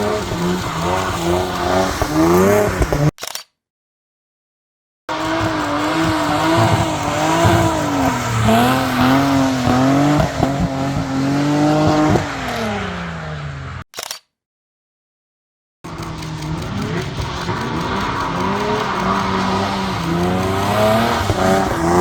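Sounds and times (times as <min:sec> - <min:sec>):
car engine revving hard: 0:00.0 - 0:03.1, 0:05.1 - 0:13.8, 0:15.9 - 0:22.0
sharp exhaust cracks: 0:15.9 - 0:22.0.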